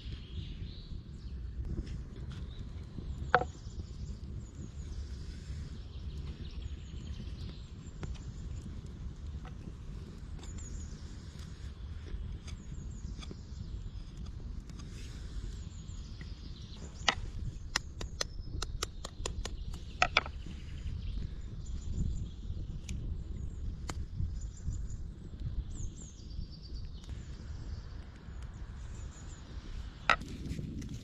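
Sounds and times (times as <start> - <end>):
low outdoor rumble: 0.0 - 31.0
small birds chirping: 0.0 - 31.0
sharp clicks: 17.0 - 20.2.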